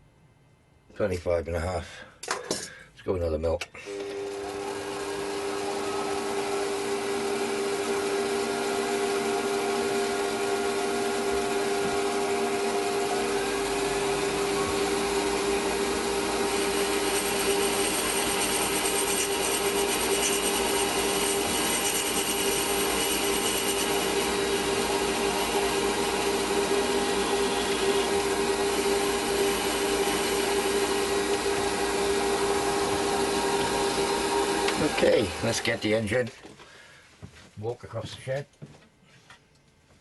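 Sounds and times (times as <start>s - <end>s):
metal lathe whining: 3.9s - 36.0s.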